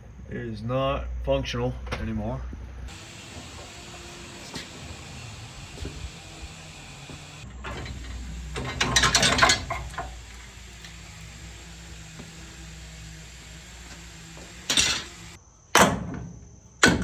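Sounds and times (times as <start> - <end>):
low hum: 2.9 - 15.4
ratchet wrench clicking: 7.8 - 11.2.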